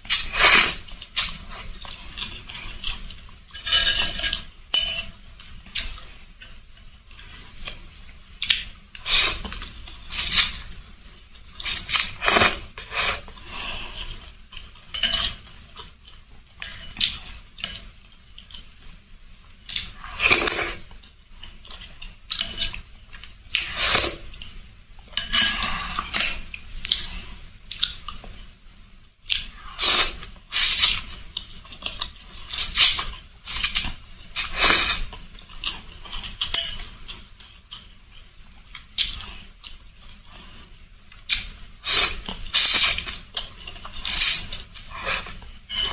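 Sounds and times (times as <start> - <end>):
utensils clinking against bowl: 1.8 - 6.6, 14.6 - 15.6.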